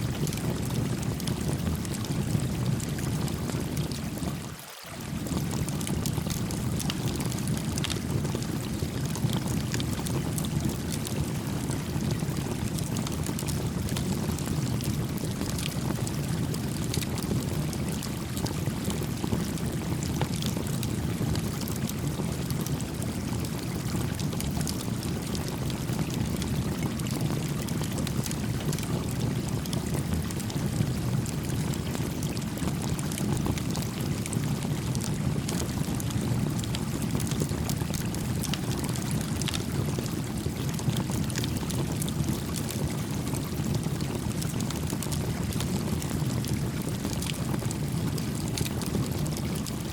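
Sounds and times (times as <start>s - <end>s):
brook flowing: 1.9s - 18.6s, 23.0s - 47.6s
campfire crackling: 36.6s - 47.7s.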